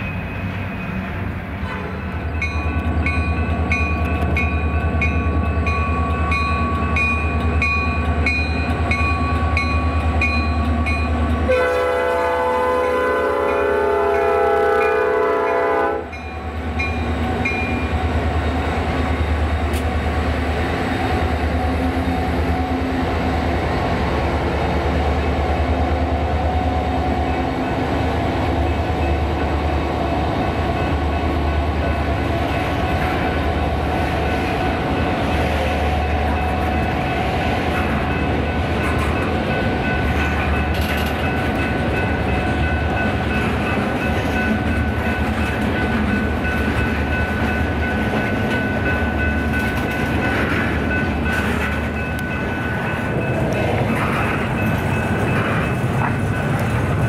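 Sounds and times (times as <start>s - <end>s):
train rumbling past: 0.0s - 57.0s
train horn blast: 11.4s - 16.2s.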